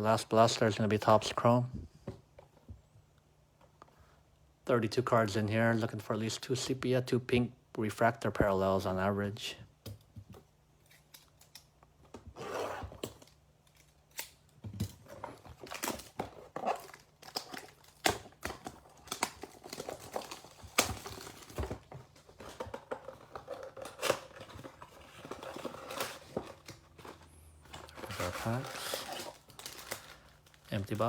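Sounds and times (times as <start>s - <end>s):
wrapper and cardboard tearing: 12.3s - 31.0s
foil packs rustling and clicking: 14.8s - 31.0s.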